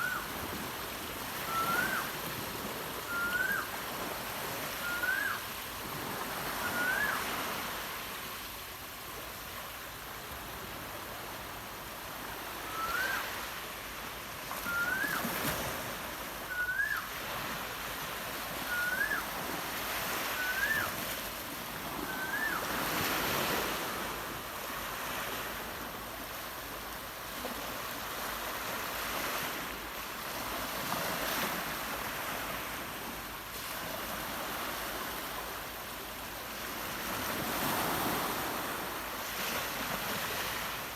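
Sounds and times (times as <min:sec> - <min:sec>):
bird whistling rising notes: 0:00.0 - 0:00.3, 0:01.4 - 0:02.2, 0:03.0 - 0:03.7, 0:04.7 - 0:05.4, 0:06.6 - 0:07.3, 0:12.6 - 0:13.3, 0:14.6 - 0:15.3, 0:16.5 - 0:17.1, 0:18.6 - 0:19.3, 0:20.3 - 0:21.0, 0:22.0 - 0:22.7
surf noise: 0:00.0 - 0:40.9.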